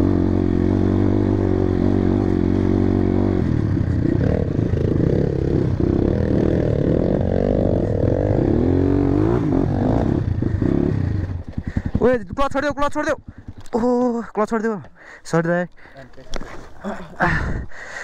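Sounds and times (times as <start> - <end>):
motorcycle engine revving: 0.0 - 14.7.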